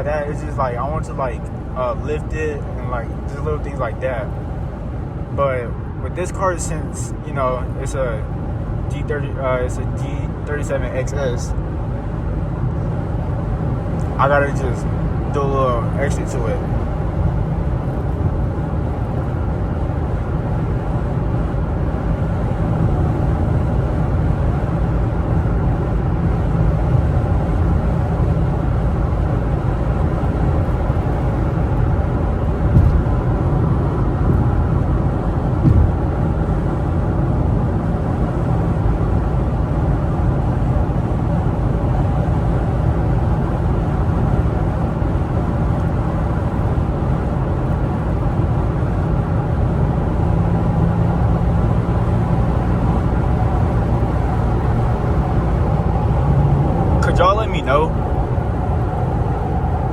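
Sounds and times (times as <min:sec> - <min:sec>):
car engine running: 0:00.0 - 0:59.9
road rumble inside car: 0:00.0 - 0:59.9
car bumps: 0:32.6 - 0:33.6, 0:35.5 - 0:36.5.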